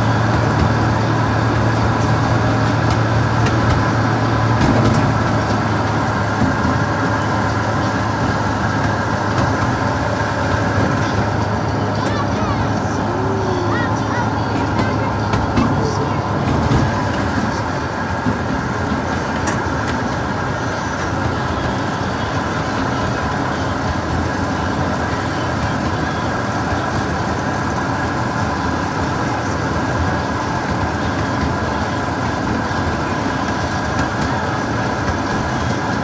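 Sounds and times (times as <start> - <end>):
miniature train rolling on track: 0.0 - 36.0.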